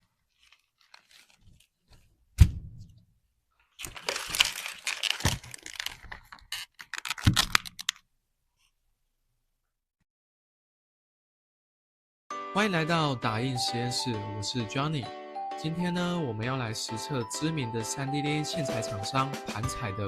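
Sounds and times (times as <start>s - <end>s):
crinkling and crackling: 0.0s - 2.2s, 3.6s - 8.0s.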